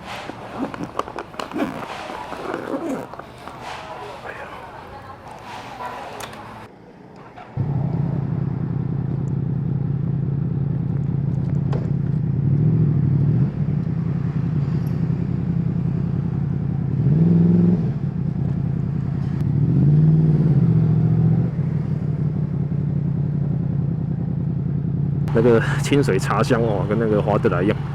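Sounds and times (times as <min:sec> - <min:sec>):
motorcycle engine revving: 0:07.6 - 0:27.9.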